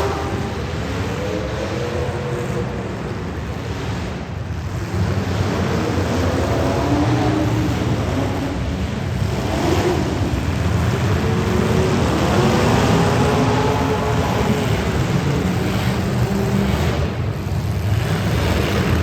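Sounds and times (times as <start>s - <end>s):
race car engines running hard: 0.0s - 19.0s.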